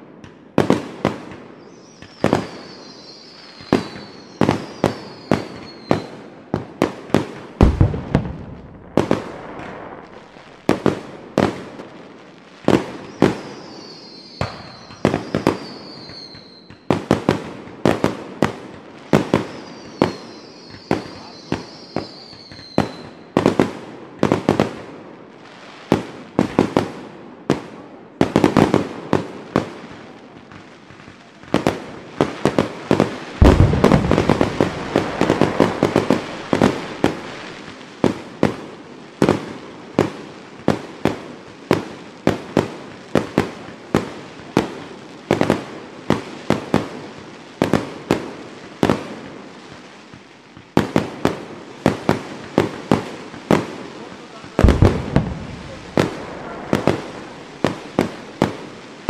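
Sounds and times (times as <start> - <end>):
fireworks crackling: 0.0 - 59.0
firework shell bursts: 33.4 - 37.3, 54.6 - 57.3.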